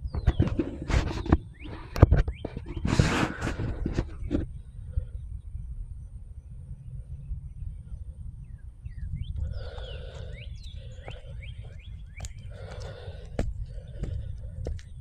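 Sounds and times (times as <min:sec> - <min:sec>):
rough bird call: 0:00.0 - 0:05.1, 0:08.9 - 0:15.0
birds chirping and calling: 0:00.0 - 0:15.0
low rumble: 0:03.3 - 0:15.0.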